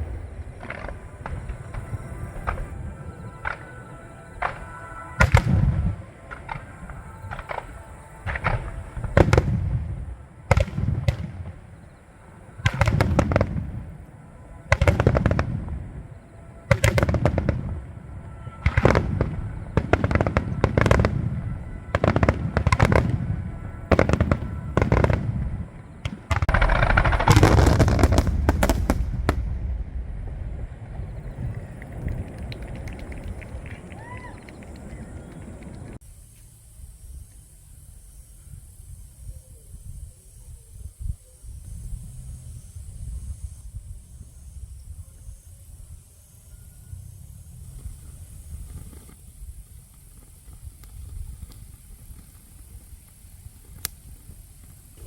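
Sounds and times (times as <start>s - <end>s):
fireworks crackling: 0.0s - 36.0s, 47.0s - 55.0s
fireworks shells bursting: 26.0s - 29.6s.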